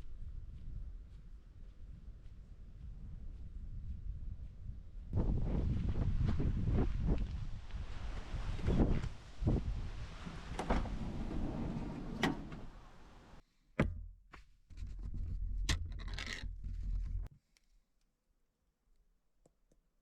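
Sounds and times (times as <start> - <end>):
wind on microphone: 0.0 - 13.4.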